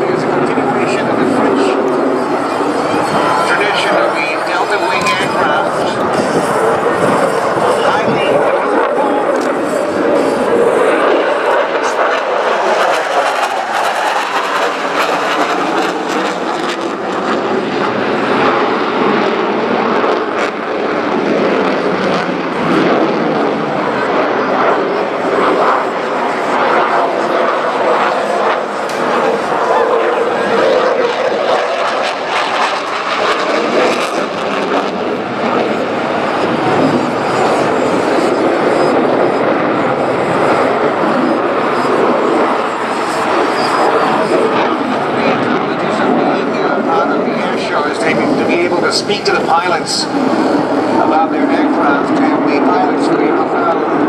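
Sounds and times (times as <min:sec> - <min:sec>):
fighter jet engine roar: 0:00.0 - 0:54.0.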